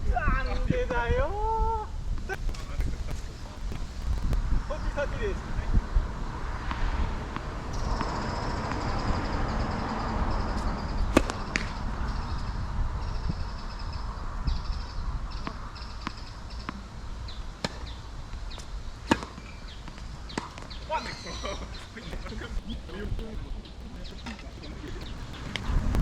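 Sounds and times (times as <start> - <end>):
wind noise on microphone: 0.0 - 15.4, 21.5 - 26.0.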